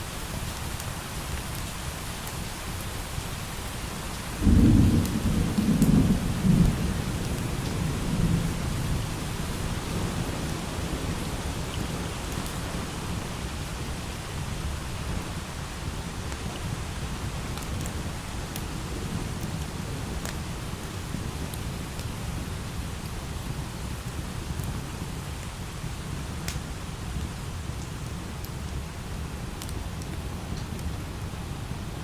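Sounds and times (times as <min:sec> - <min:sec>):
steady light rain: 0:00.0 - 0:32.0
thunder rumbling: 0:04.4 - 0:12.1.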